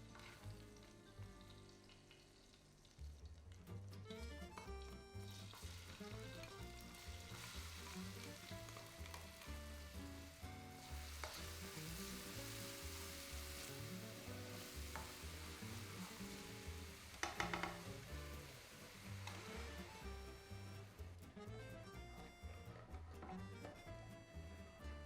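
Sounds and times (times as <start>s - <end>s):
food sizzling in oil: 0.0s - 3.2s, 4.7s - 21.0s
background music: 0.0s - 25.0s.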